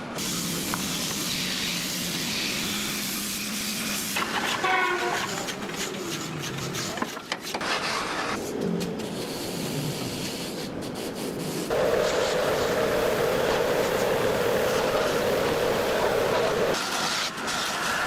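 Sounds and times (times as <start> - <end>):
woodworking machine humming: 11.7 - 17.2.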